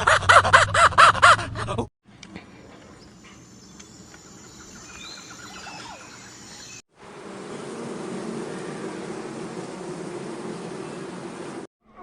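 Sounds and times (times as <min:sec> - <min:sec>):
bird chirps: 0:02.7 - 0:06.8.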